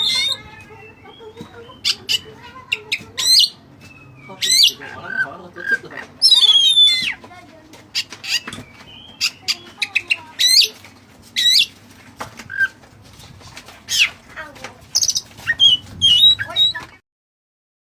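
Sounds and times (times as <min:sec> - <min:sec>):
songbird whistling song: 0:00.0 - 0:05.2, 0:06.2 - 0:07.2, 0:11.4 - 0:11.7, 0:14.9 - 0:17.0.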